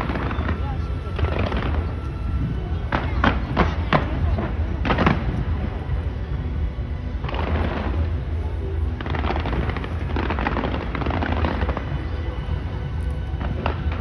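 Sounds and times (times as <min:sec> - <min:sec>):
fireworks crackling shots: 0:00.0 - 0:06.0, 0:07.2 - 0:14.0
steady low rumble: 0:00.0 - 0:14.0.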